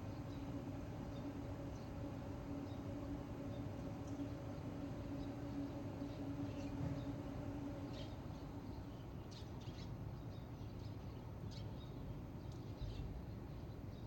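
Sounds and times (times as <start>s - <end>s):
low background rumble: 0.0s - 10.8s
birds chirping: 0.0s - 11.6s
faint steady hum: 0.0s - 14.0s.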